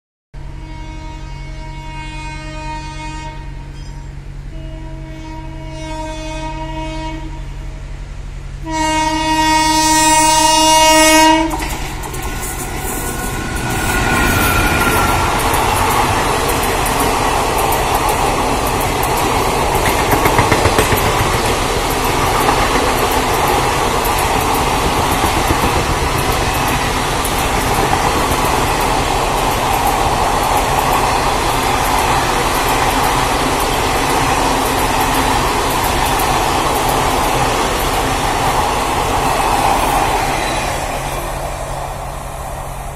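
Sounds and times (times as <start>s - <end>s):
train horn blast: 0.4s - 12.0s
rush of passing train coaches: 0.4s - 42.9s
wheels clattering over rail joints: 11.5s - 40.1s.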